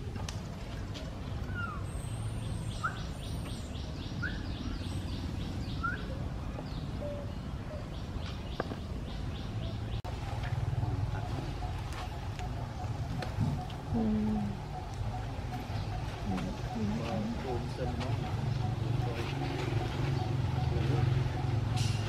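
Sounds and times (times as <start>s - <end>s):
bird chirps: 1.3s - 10.0s, 10.8s - 22.0s.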